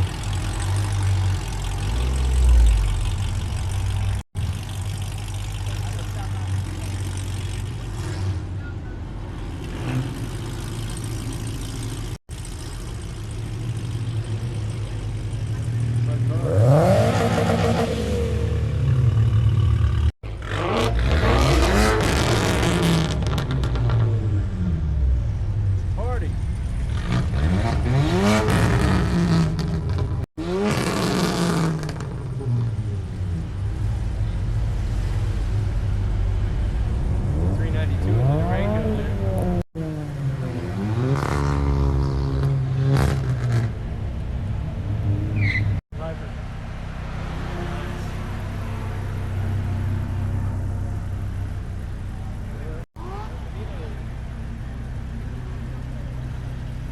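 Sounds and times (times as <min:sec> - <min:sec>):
vehicle engine idling: 0:00.0 - 0:16.4, 0:45.9 - 0:56.9
vehicle engine revving: 0:00.0 - 0:56.9.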